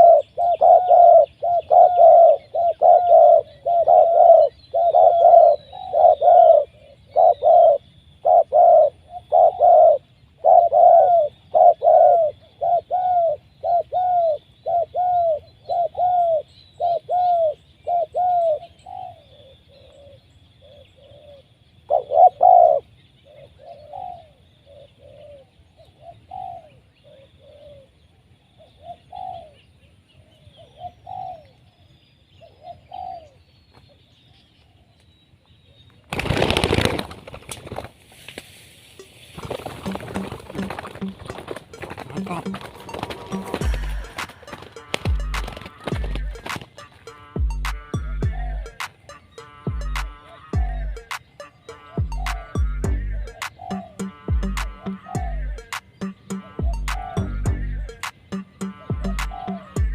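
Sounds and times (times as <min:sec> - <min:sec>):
dove cooing: 0:00.0 - 0:28.0, 0:28.6 - 0:29.6, 0:30.4 - 0:31.6, 0:32.4 - 0:33.4, 0:39.0 - 0:59.9
faint high bird chirping: 0:39.0 - 0:59.9.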